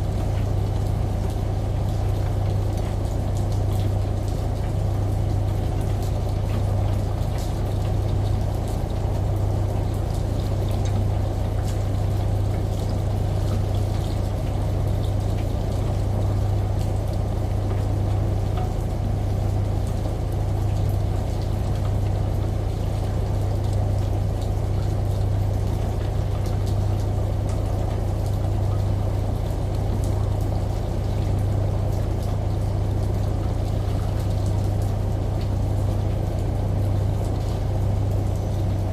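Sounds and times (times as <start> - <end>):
rain: 0.0 - 38.9
shower running: 0.0 - 38.9
washing machine humming: 0.0 - 38.9
water dripping: 0.1 - 38.9.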